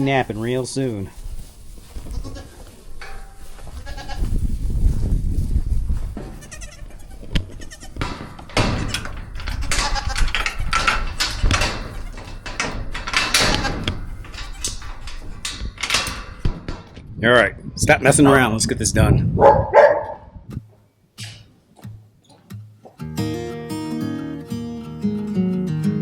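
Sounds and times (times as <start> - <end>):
rustling: 0.0 - 17.0
baby goats bleating: 2.0 - 2.7, 3.7 - 4.3, 6.3 - 8.0, 9.6 - 10.8
knocks: 8.0 - 17.0.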